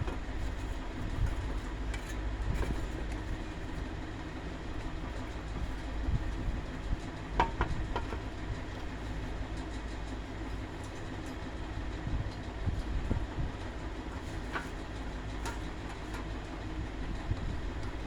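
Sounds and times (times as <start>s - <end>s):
low mechanical rumble and hum: 0.0s - 18.0s.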